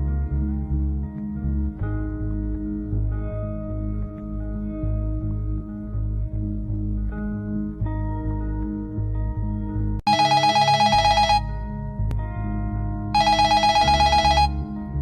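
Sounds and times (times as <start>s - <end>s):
background music: 0.0s - 15.0s
telephone ringing: 10.1s - 11.6s, 13.2s - 14.7s.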